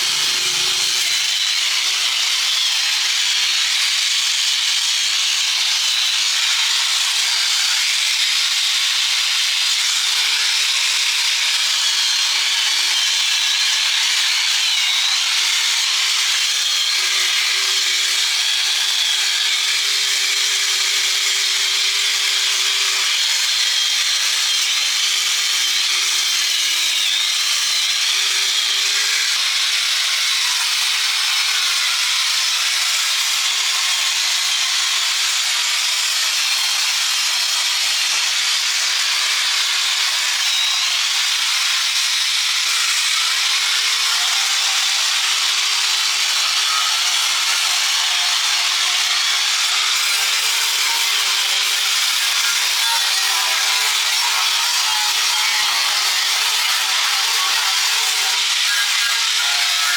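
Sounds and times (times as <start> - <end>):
power tool abrading steel: 0.0 - 2.6, 35.3 - 59.9.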